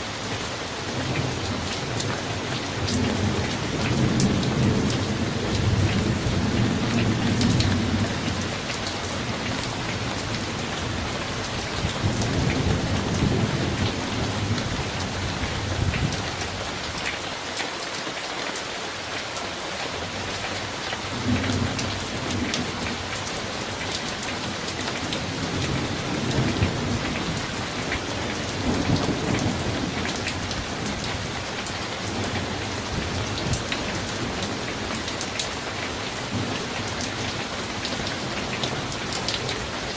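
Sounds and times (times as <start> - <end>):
steady rain: 0.0 - 39.9
low rolling thunder: 0.9 - 16.6, 21.1 - 35.2.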